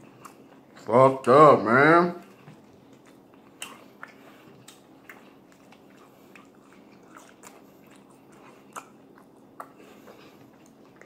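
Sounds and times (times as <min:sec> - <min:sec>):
chewing french fries: 0:00.0 - 0:11.0
wet mouth clicks and smacks: 0:02.4 - 0:09.9.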